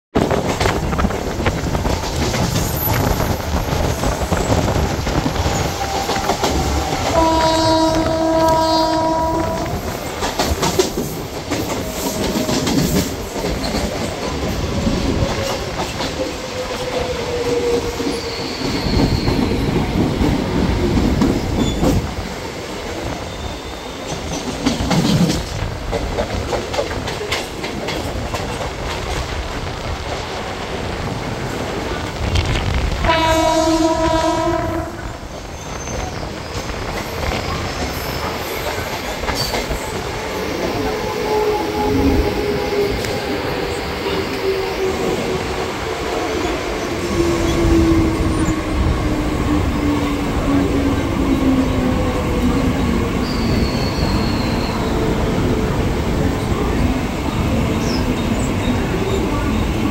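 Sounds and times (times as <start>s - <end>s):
electric train running on rails: 0.1s - 59.9s
train horn: 6.6s - 9.9s, 32.9s - 35.2s, 40.7s - 43.3s.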